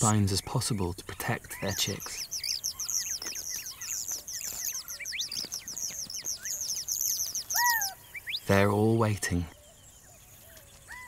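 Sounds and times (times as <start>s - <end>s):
small birds chirping: 0.0s - 11.0s
lower louder bird call: 1.5s - 8.8s.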